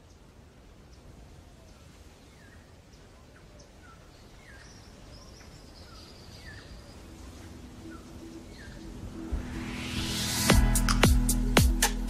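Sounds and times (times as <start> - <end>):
small birds chirping: 0.0 - 9.3
bird trill: 4.5 - 9.6
low rumble: 7.4 - 11.8.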